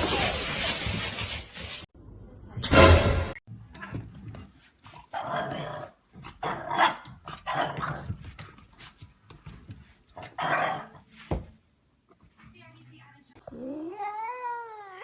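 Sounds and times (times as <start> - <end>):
dog barking and growling: 3.8 - 8.4, 10.1 - 11.1.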